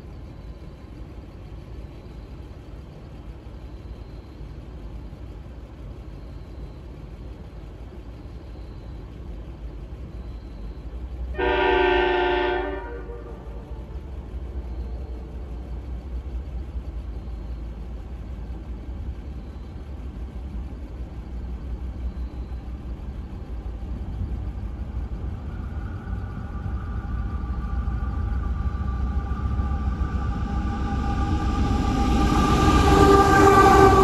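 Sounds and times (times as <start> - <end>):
diesel freight train rumble: 0.0 - 34.0
steady higher tone: 21.9 - 34.0.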